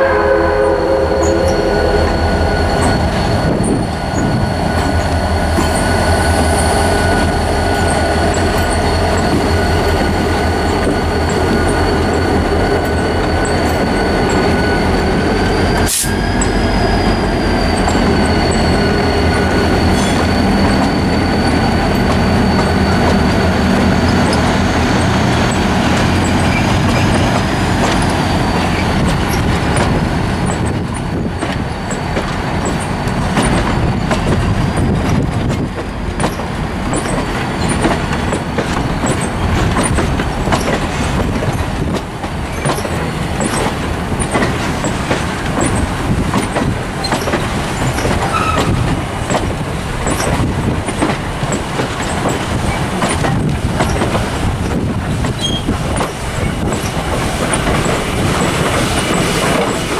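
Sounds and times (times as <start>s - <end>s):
train wheels rumbling on rails: 0.0s - 59.9s
faint high wheel squeal: 0.6s - 27.3s, 47.0s - 48.9s, 55.4s - 55.7s
wheels clicking over rail joints: 21.9s - 59.9s.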